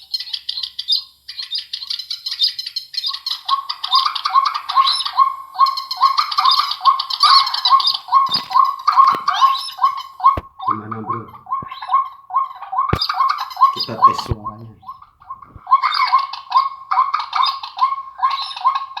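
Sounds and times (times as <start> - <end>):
high bird chirps over loudspeaker: 0.0 - 19.0
low repeated bird note: 8.1 - 12.1.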